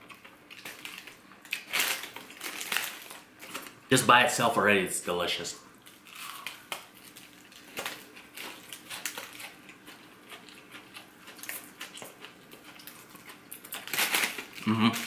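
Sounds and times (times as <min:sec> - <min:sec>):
crunchy chewing: 0:05.8 - 0:15.0.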